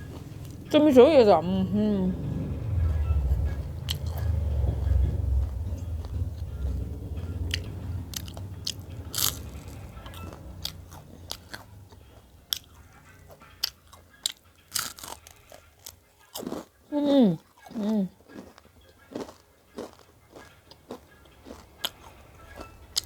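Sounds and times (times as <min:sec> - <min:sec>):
low rumble: 0:00.0 - 0:13.4
person chewing food: 0:02.8 - 0:23.0.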